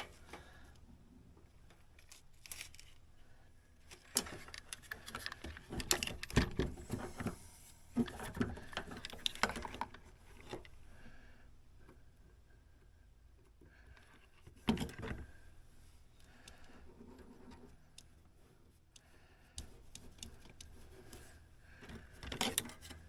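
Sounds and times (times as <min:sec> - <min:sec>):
clicks and taps of small parts: 0:18.9 - 0:21.2, 0:21.8 - 0:23.0.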